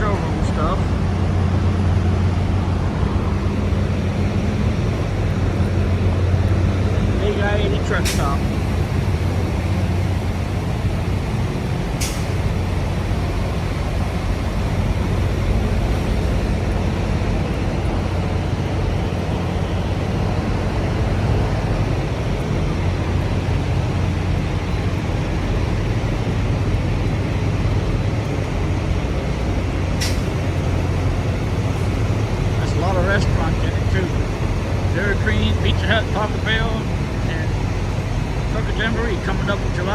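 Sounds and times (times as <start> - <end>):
diesel truck engines idling: 0.0 - 39.9
sharp air hisses: 12.0 - 12.4.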